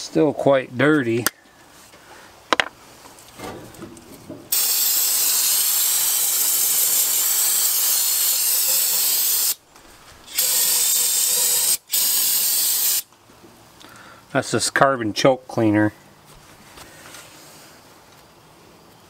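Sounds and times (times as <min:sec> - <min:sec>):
aerosol spray hissing: 0:04.5 - 0:09.6, 0:10.2 - 0:13.1.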